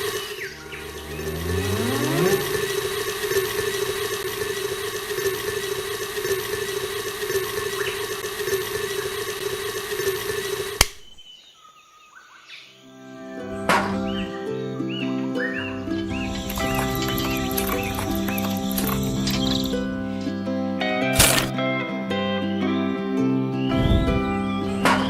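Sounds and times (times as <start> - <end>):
small motor whining: 0.0 - 10.9, 15.5 - 20.4, 21.1 - 21.5
motor cutoff click: 0.0 - 11.2, 15.7 - 20.3, 21.1 - 21.6
faint chirping: 11.0 - 20.1.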